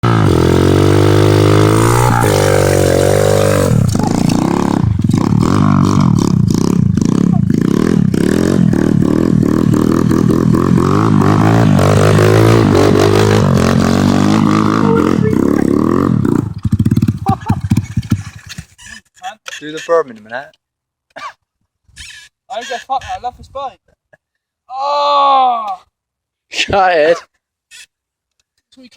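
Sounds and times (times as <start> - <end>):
motorbike engine revving: 0.0 - 18.8.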